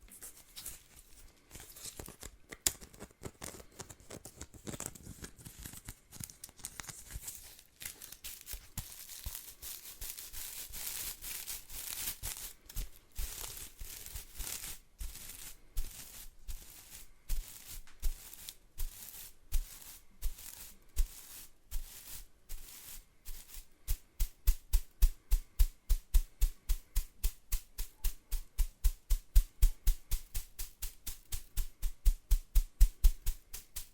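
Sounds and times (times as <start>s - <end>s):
whisk broom bristles scratching: 6.8s - 33.9s.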